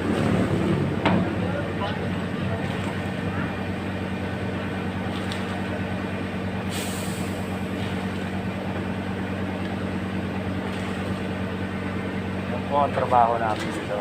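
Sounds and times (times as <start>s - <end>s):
truck engine running: 0.0s - 14.0s
short hiss: 6.7s - 7.4s.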